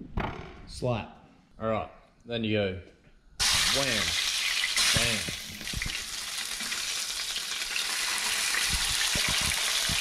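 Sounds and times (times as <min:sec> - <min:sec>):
fish sizzling in hot oil: 0:03.4 - 0:10.0.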